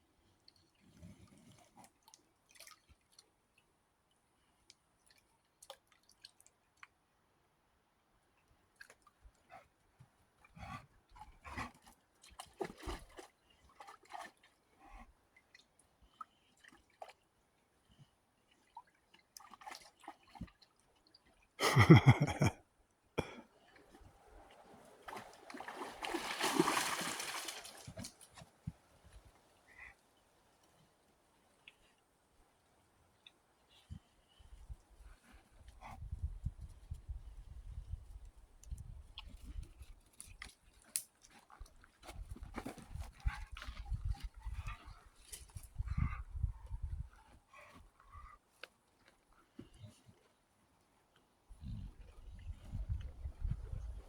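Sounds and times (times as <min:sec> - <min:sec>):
dog splashing in water: 0:25.0 - 0:28.4.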